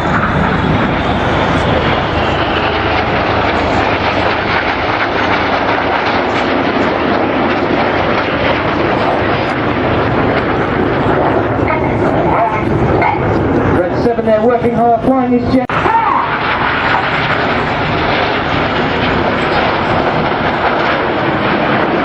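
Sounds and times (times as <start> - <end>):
jet engines roaring overhead: 0.0 - 22.0.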